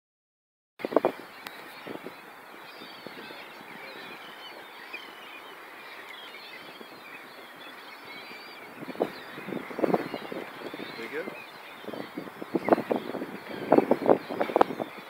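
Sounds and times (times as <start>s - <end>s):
birds chirping and calling: 0.8s - 15.0s.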